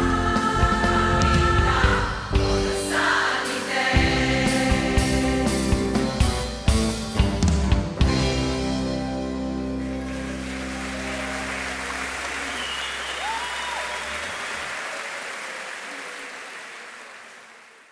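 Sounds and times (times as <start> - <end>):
drum hits: 0.0 - 3.2, 3.9 - 8.8
choir and band music: 0.0 - 10.8
audience applause: 9.5 - 17.9.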